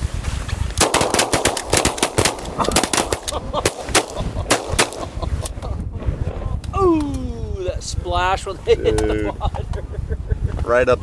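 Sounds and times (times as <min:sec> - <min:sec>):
shotgun shots: 0:00.8 - 0:05.4.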